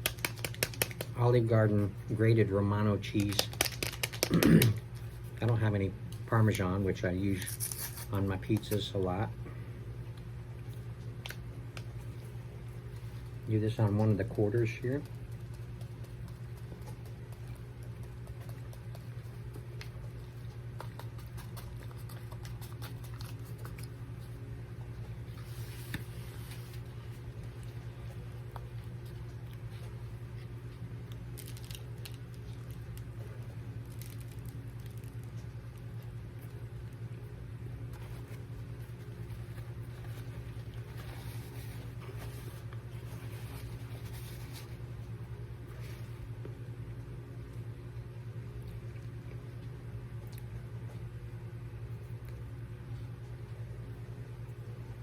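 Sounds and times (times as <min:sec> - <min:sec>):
faint crackly clicks: 0:00.0 - 0:01.2
steady low hum: 0:00.0 - 0:55.0.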